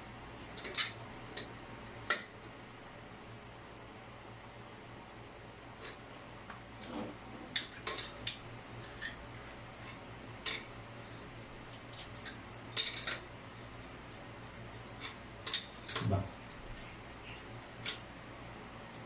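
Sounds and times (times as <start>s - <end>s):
steady low hum: 0.0s - 19.0s
light metallic clinks: 0.6s - 1.5s.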